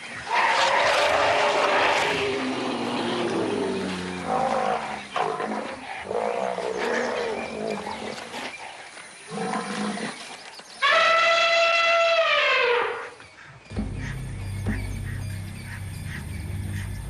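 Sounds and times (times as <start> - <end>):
elephant trumpeting: 0.3 - 5.5
large animals grunting and bellowing: 0.3 - 10.2, 13.7 - 17.0.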